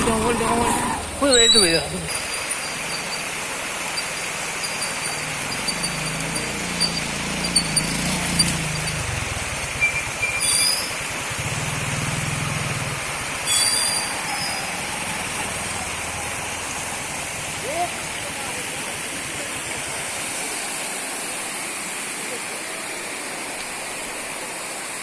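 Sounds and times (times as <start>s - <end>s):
running water: 0.0s - 25.0s
low engine hum: 1.9s - 13.5s.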